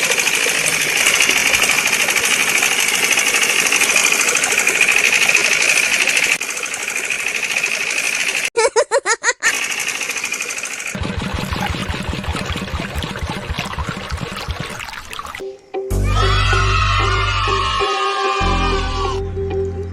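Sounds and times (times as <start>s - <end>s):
small motor buzzing: 0.0s - 8.5s
rapid rhythmic knocking: 10.9s - 15.4s
brief warbling tone: 11.1s - 15.4s.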